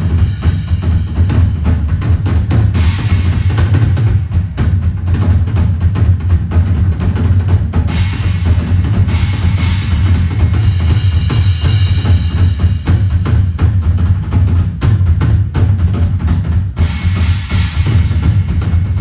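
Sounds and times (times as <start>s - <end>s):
cymbal wash: 0.0s - 5.2s, 7.4s - 13.7s, 16.9s - 19.0s
kick drum and snare strokes: 0.0s - 19.0s.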